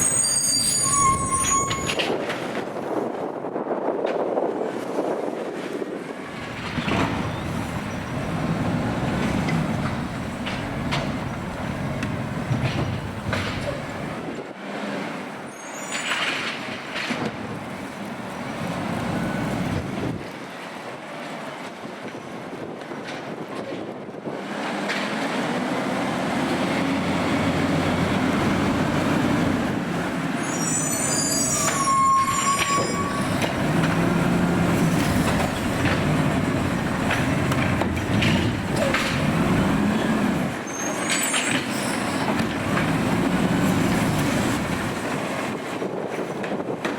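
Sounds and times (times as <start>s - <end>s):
high squeal: 0.0s - 2.2s, 15.5s - 16.3s, 30.3s - 35.4s, 40.0s - 42.3s
garbage truck engine: 6.3s - 20.2s, 24.6s - 46.9s.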